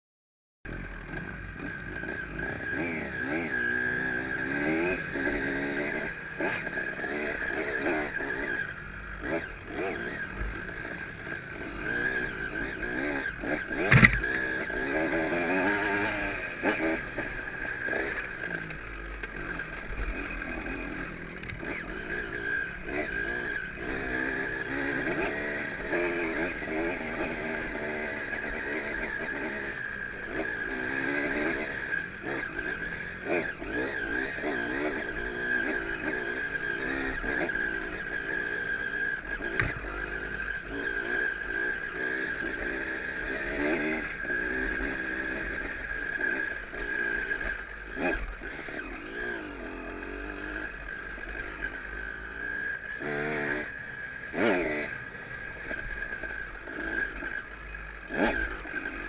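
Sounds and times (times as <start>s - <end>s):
motorcycle engine revving: 0.7s - 59.0s
sharp knocks: 13.8s - 14.2s.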